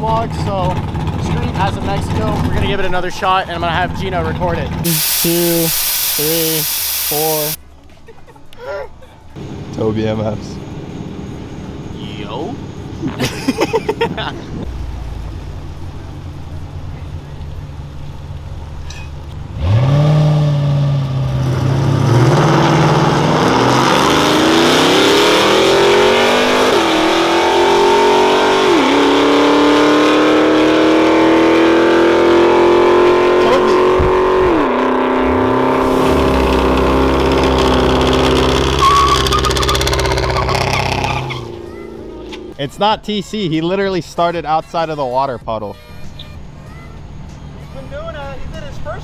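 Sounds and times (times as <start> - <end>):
car engine at full throttle: 0.0 - 7.6, 14.2 - 42.7.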